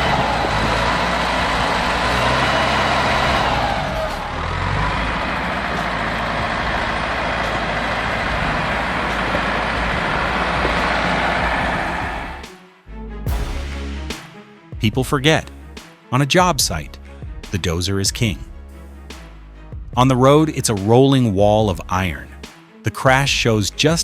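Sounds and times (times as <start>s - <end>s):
heavy diesel engine under load: 0.0s - 12.5s.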